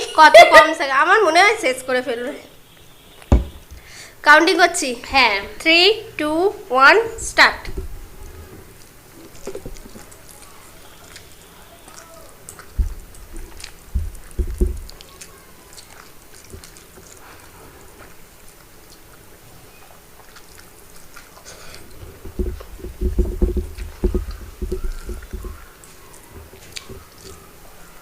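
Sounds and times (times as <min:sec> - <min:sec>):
wet chewing: 0:07.7 - 0:28.0
mouth and lip smacks: 0:08.8 - 0:17.5
soft clicks and thumps: 0:12.7 - 0:15.1, 0:21.9 - 0:27.4.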